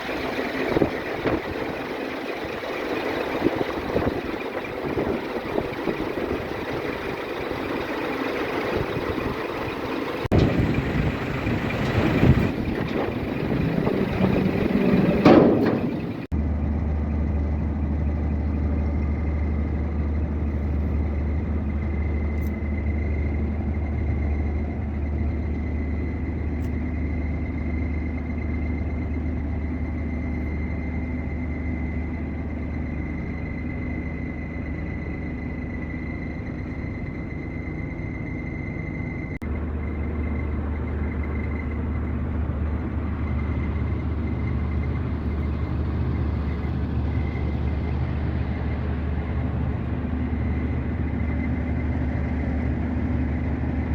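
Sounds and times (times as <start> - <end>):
diesel truck engine running: 0.0 - 53.9
faint steady whine: 17.2 - 53.9.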